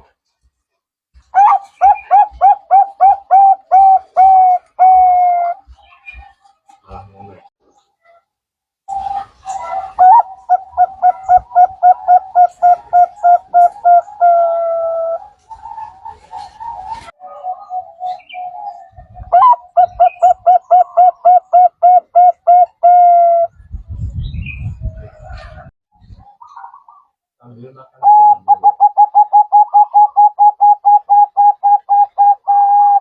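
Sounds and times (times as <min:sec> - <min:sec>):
dove cooing: 0:01.4 - 0:05.7, 0:08.9 - 0:23.5, 0:28.0 - 0:33.0.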